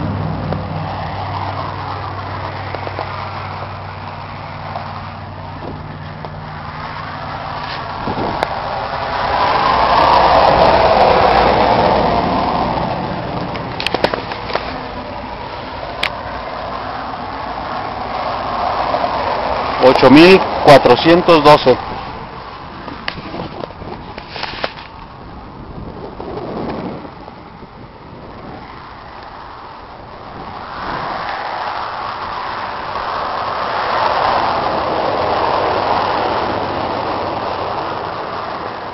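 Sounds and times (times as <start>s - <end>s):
tractor diesel engine running: 0.0s - 38.9s
vehicle passing: 0.0s - 38.9s.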